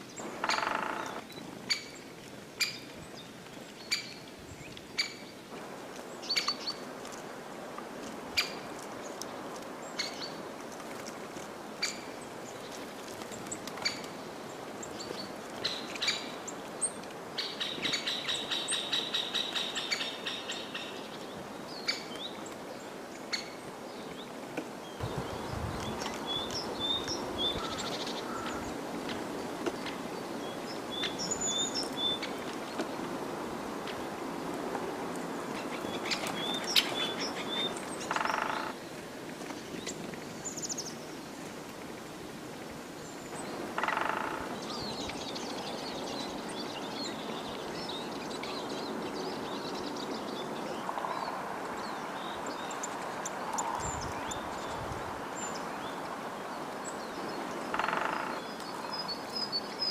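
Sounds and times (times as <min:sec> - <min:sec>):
background hiss: 0:00.0 - 0:59.9
lower bird call: 0:00.2 - 0:01.2.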